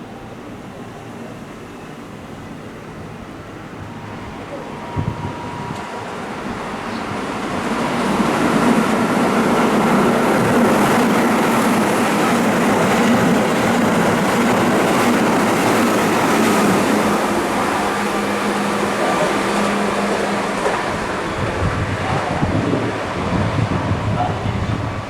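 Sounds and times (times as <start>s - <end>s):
train motor hum: 3.4s - 25.0s
electric train running: 3.8s - 25.0s.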